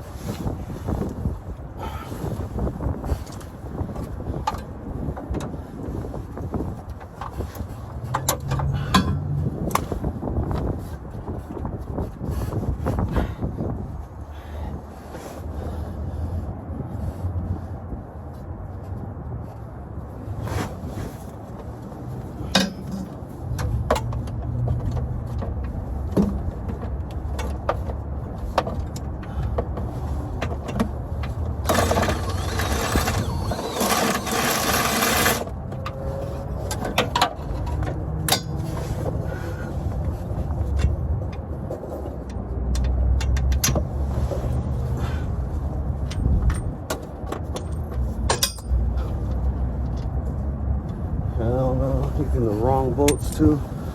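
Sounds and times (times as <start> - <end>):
wind buffeting microphone: 0.0 - 22.5, 43.8 - 46.9
hand tools clinking on bolts: 22.5 - 24.4, 31.7 - 36.0, 36.7 - 38.6, 47.4 - 49.1, 53.0 - 53.6.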